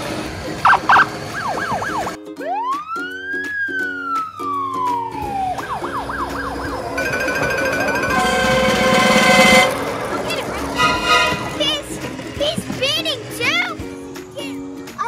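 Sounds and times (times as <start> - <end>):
police siren yelping and wailing: 0.7 - 9.0
background music: 1.7 - 15.0.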